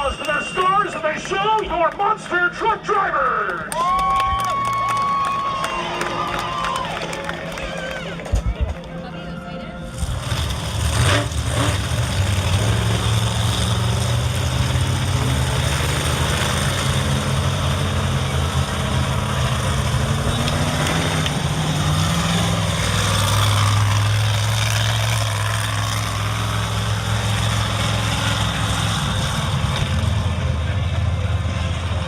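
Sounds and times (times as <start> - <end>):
truck engines idling: 0.0 - 32.0.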